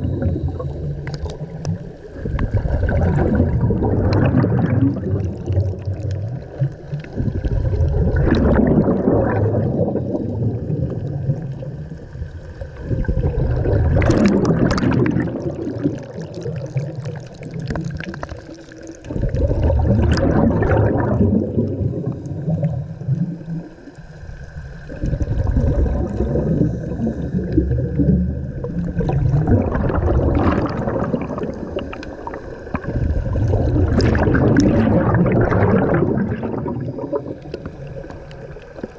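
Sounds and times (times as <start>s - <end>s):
exhaled bubbles gurgling underwater: 0.0s - 38.9s.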